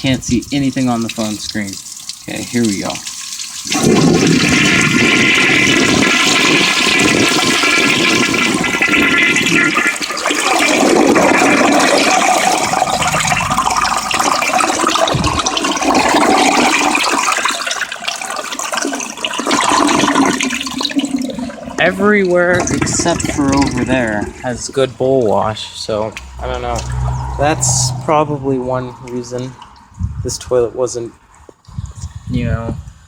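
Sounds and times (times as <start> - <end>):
toilet flushing: 0.5 - 27.3.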